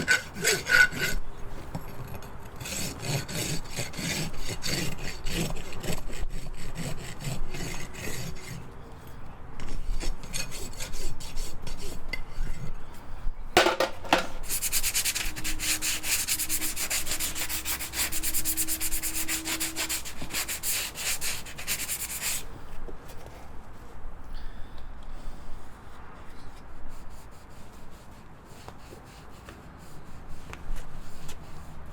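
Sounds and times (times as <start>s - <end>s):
rasp filing a hoof: 0.0s - 13.8s, 14.4s - 22.5s.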